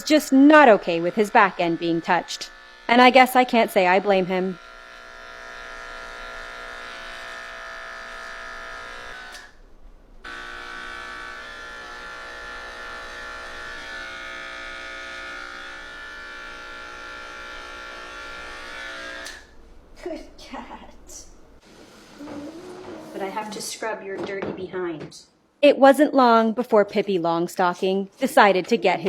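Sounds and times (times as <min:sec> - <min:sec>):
electric clippers buzzing: 0:00.0 - 0:09.6, 0:10.2 - 0:19.6.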